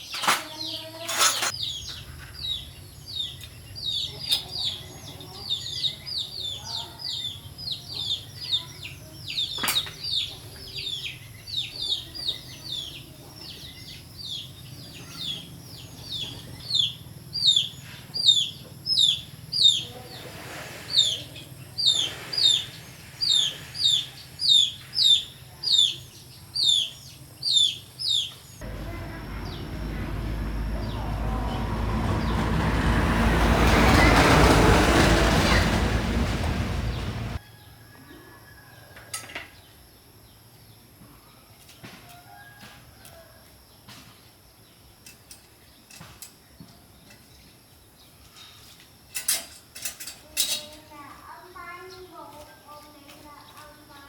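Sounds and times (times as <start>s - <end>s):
small bird chirping: 0.0s - 31.1s.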